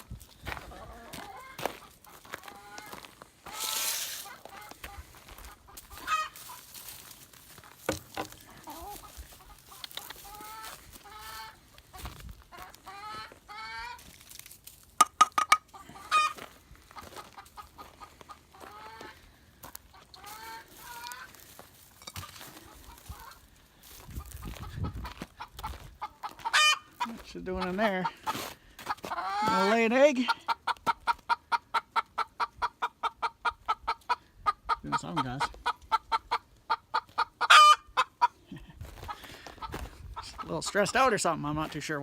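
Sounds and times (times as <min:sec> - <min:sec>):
hens clucking: 0:00.0 - 0:14.1, 0:15.0 - 0:42.0.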